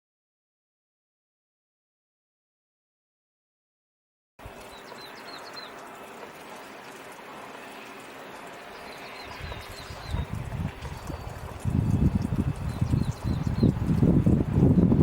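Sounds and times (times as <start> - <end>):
steady rushing hiss: 4.4 - 15.0
small birds chirping: 4.6 - 7.0, 7.8 - 15.0.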